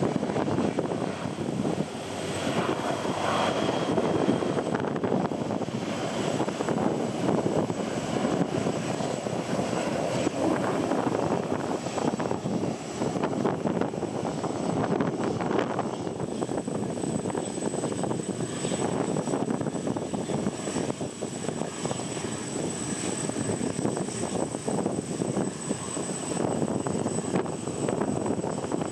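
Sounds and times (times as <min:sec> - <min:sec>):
jet engines roaring: 0:00.0 - 0:28.9
wind buffeting microphone: 0:00.0 - 0:28.9.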